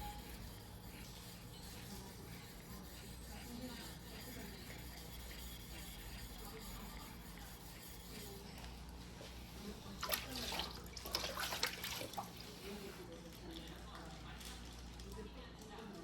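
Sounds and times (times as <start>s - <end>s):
knife rubbing on whetstone: 0.0s - 8.7s.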